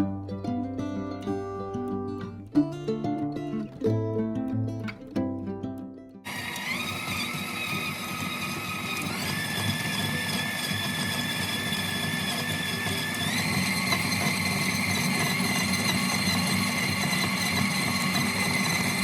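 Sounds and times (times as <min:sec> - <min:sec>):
electric mixer motor whine: 0:06.3 - 0:19.0.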